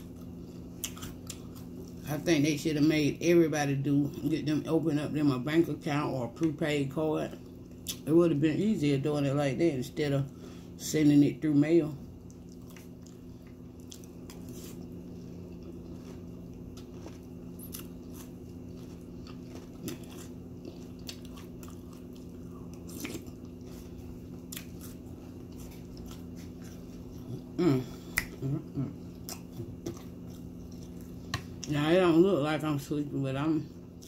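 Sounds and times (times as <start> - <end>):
chewing cereal: 0.0 - 2.2, 12.2 - 27.6, 28.9 - 31.8
steady low hum: 0.0 - 34.0.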